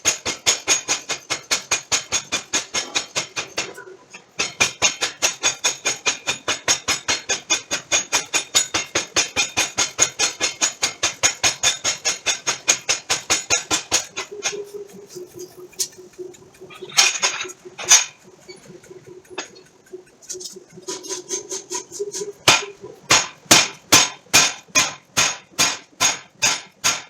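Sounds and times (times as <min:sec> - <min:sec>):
power hammer striking steel: 0:00.0 - 0:03.8, 0:04.4 - 0:16.0, 0:20.4 - 0:27.0
steady hum: 0:12.9 - 0:26.0.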